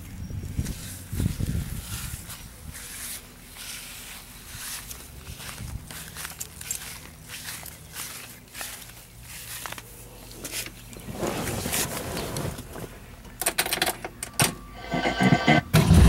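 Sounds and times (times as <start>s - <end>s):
car engine starting: 14.8s - 16.0s
starter cranking engine: 14.8s - 16.0s.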